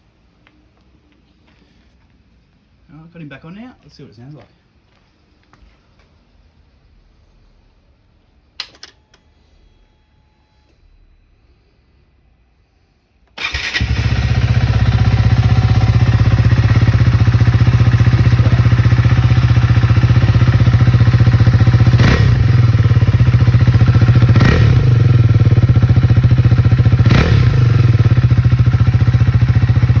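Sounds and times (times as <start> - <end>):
motorcycle engine idling loudly: 13.4 - 30.0.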